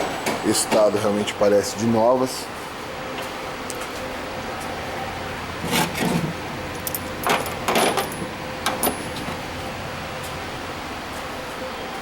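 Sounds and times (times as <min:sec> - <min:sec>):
steady workshop hum: 0:00.0 - 0:12.0
metal parts clinking and rattling: 0:05.7 - 0:09.3.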